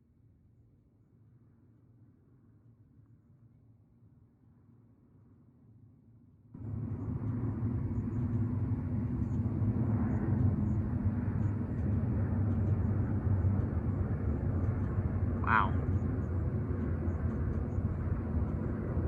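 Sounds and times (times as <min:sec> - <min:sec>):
airplane rumble overhead: 0:06.6 - 0:19.0.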